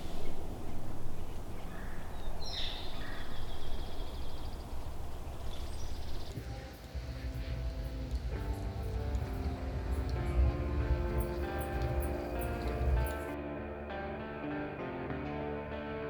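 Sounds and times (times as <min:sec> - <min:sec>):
small birds chirping: 0:00.0 - 0:13.4
low rumble: 0:06.3 - 0:13.4
guitar music: 0:06.4 - 0:16.0.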